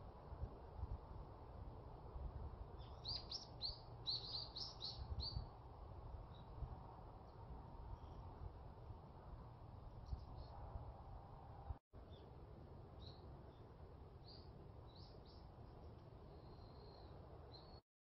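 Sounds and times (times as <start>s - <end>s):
small bird chirping: 2.8s - 5.5s, 14.2s - 17.8s.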